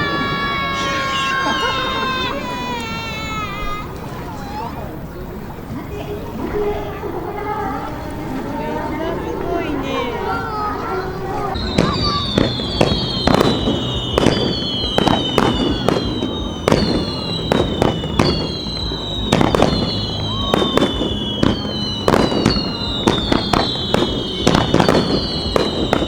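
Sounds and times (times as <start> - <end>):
fireworks bangs: 0.0 - 26.0
firework shell whistles: 11.5 - 26.0.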